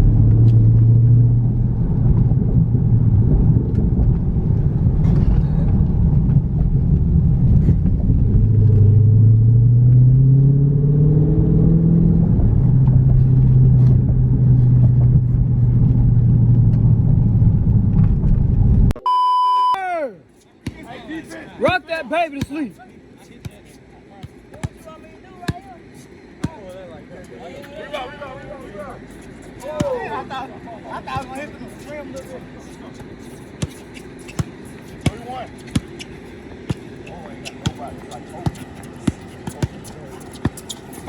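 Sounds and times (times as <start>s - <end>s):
car engine droning: 0.0s - 18.9s.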